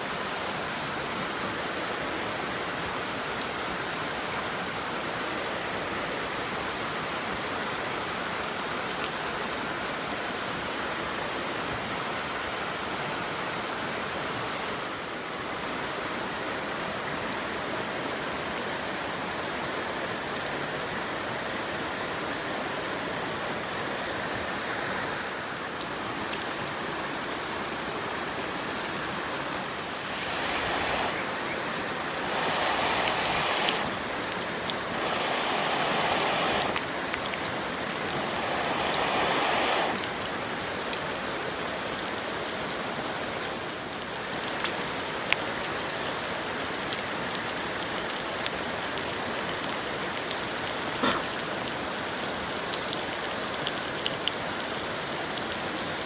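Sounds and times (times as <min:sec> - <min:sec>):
chicken sizzling in frying pan: 0:29.7 - 0:40.6.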